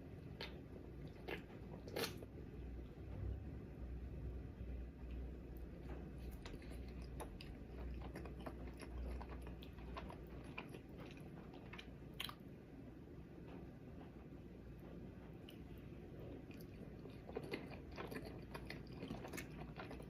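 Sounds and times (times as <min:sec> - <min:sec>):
low hum: 0:00.0 - 0:20.0
person chewing food: 0:00.2 - 0:02.6, 0:05.1 - 0:12.5, 0:15.4 - 0:20.0.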